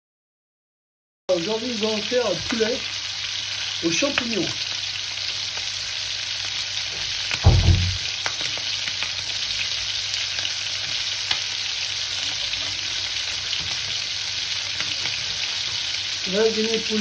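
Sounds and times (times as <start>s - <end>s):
chicken sizzling in hot oil: 1.3s - 17.0s
dull thump: 7.4s - 8.0s.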